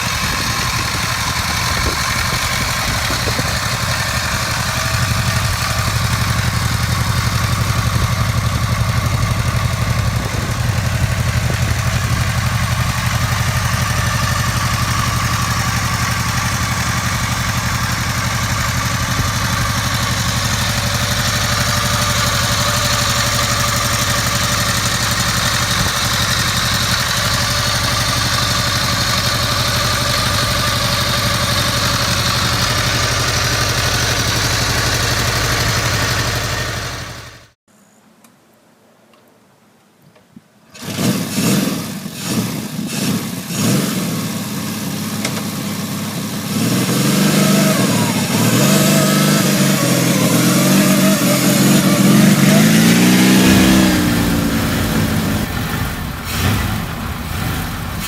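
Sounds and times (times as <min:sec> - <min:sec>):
motorcycle engine idling: 0:00.0 - 0:37.6, 0:44.1 - 0:58.0.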